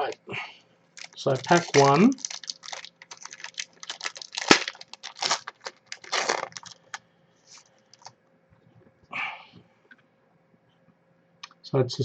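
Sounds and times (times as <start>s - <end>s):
soft wrapper rustles: 1.0s - 8.1s
wrapper tearing and crinkling: 1.0s - 8.1s.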